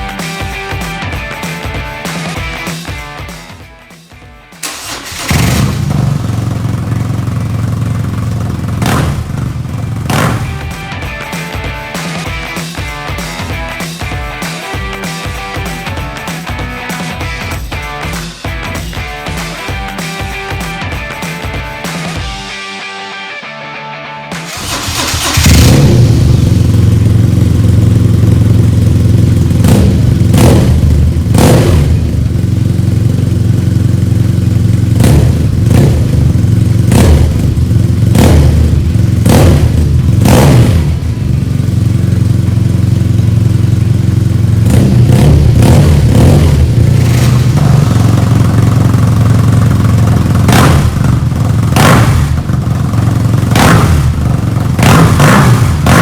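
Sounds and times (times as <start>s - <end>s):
sharp throttle blips: 4.6s - 11.0s, 24.3s - 56.0s
motorcycle engine idling: 4.7s - 17.8s, 24.5s - 56.0s.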